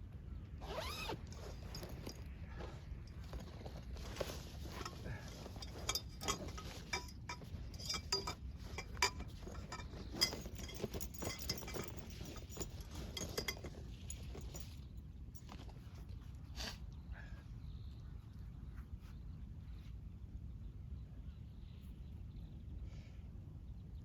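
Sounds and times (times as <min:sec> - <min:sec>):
camping gear clinks and knocks: 0:00.6 - 0:16.3.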